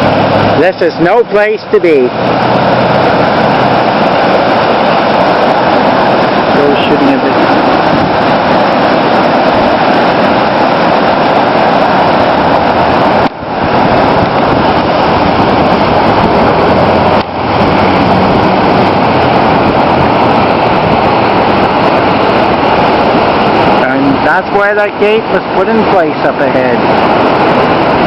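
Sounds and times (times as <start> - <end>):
churning floodwater rushing: 0.0 - 28.0.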